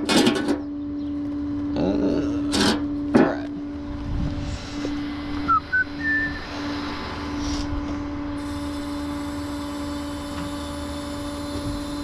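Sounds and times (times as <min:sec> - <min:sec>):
vehicle engine humming: 0:00.0 - 0:12.0
short high chirps: 0:05.5 - 0:06.5.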